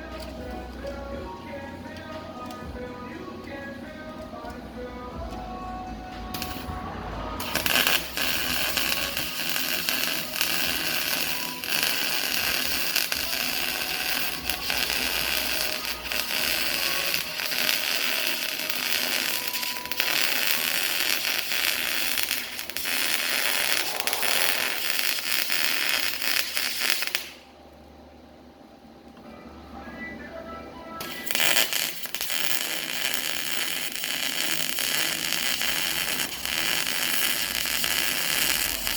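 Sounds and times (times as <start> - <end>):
welding arc crackling: 6.2 - 27.5, 31.0 - 38.9.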